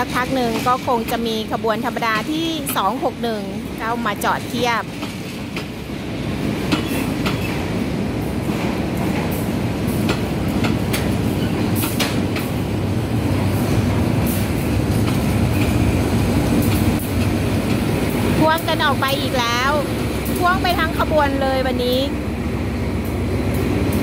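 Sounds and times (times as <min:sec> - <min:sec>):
train coaches rumbling past: 0:00.0 - 0:24.0
wheels clacking over rail joints: 0:06.4 - 0:07.8, 0:08.5 - 0:12.8.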